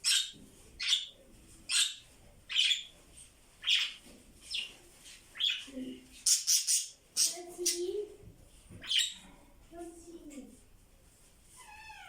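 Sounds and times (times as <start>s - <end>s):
budgies chirping: 0.0s - 2.9s, 3.6s - 4.8s, 5.4s - 7.9s, 8.8s - 9.2s.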